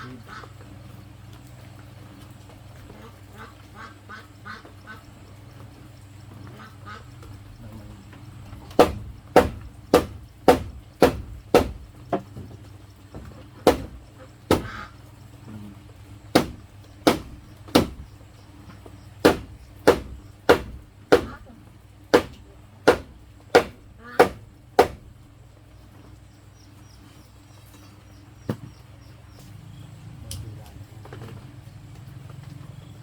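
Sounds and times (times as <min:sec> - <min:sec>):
ducks quacking faintly: 0:00.0 - 0:01.1, 0:02.8 - 0:08.2, 0:13.3 - 0:15.9
tool striking bamboo: 0:08.6 - 0:12.5, 0:13.2 - 0:14.8, 0:16.3 - 0:18.1, 0:19.2 - 0:21.5, 0:22.1 - 0:25.1.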